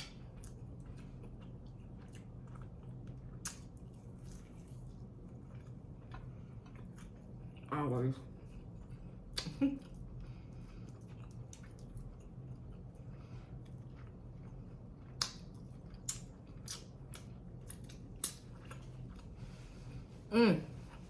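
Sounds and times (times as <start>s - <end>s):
person chewing and biting: 0.0s - 7.7s, 10.8s - 19.4s
steady low hum: 0.0s - 21.0s.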